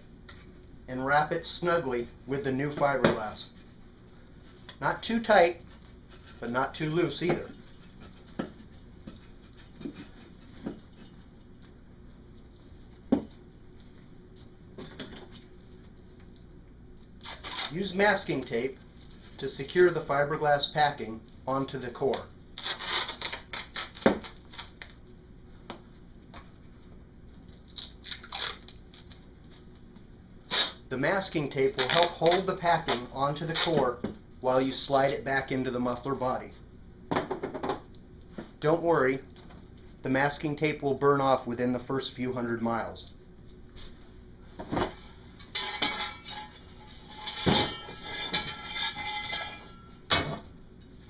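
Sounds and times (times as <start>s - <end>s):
masking tape pulled from roll: 17.2s - 17.8s, 22.6s - 24.9s, 27.7s - 29.2s, 30.5s - 30.8s
rasping tape pull with squeak: 17.2s - 17.8s, 22.6s - 24.9s, 27.8s - 28.7s, 30.5s - 30.8s
metallic ringing: 45.4s - 50.1s.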